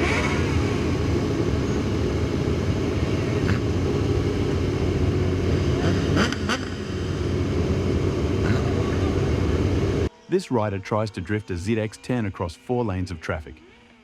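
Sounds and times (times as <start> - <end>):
vehicle road noise rumble: 0.0 - 10.1.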